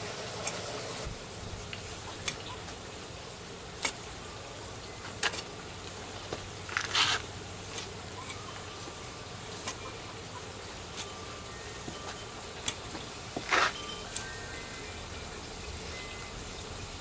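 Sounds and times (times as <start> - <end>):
garden hoe striking soil: 3.8 - 4.1, 5.1 - 5.5, 6.2 - 8.4, 9.5 - 10.0, 10.8 - 11.2, 11.8 - 14.4
hoe scraping soil: 6.7 - 8.4, 13.4 - 14.4.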